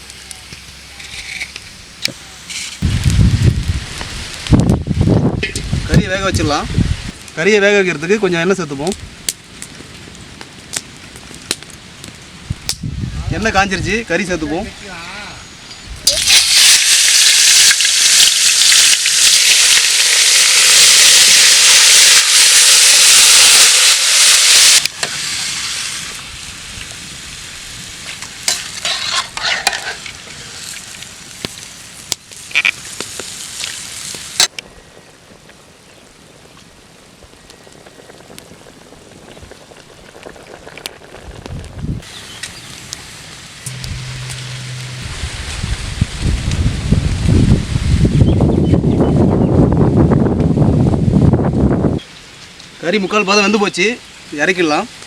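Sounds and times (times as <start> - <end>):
meat sizzling in hot oil: 16.0 - 34.5.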